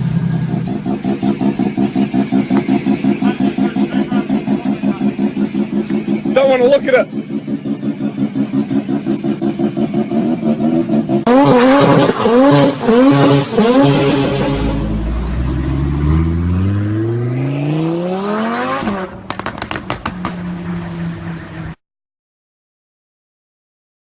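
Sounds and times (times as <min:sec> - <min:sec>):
car engine idling and revving: 0:00.0 - 0:21.8
engine sharp cracks: 0:00.5 - 0:10.5, 0:18.8 - 0:20.6.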